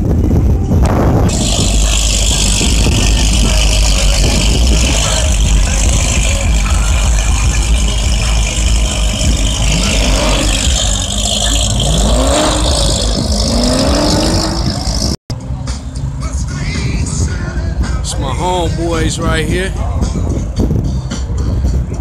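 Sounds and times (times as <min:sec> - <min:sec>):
car engine revving: 0:00.8 - 0:15.2.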